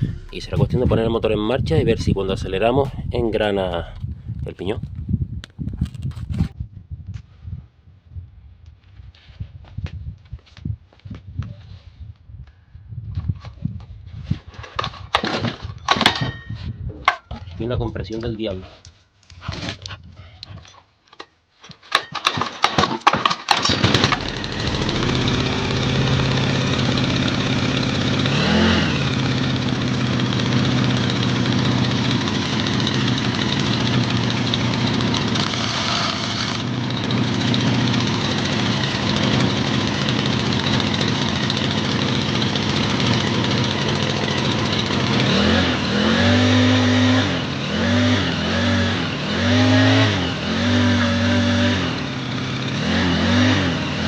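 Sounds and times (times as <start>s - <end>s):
small engine idling and revving: 0.0s - 1.0s, 23.5s - 54.0s
pull-starter cord: 21.9s - 27.6s.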